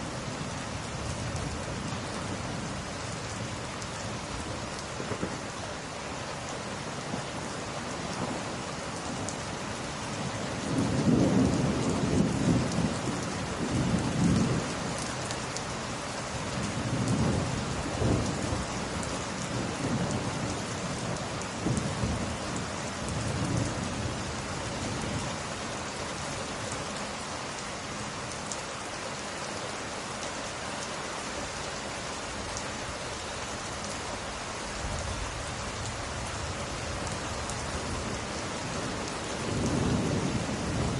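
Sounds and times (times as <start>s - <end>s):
rain falling on glass: 0.0s - 40.9s
thunder rumbling: 10.6s - 14.7s, 34.8s - 40.9s.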